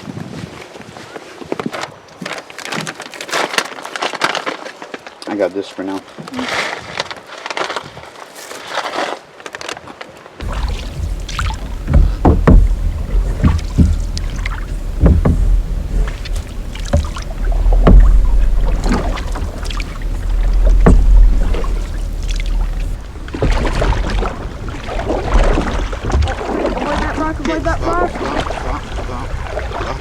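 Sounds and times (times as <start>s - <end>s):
steady low rumble: 10.4s - 26.0s
paddle strokes splashing water: 10.4s - 30.0s.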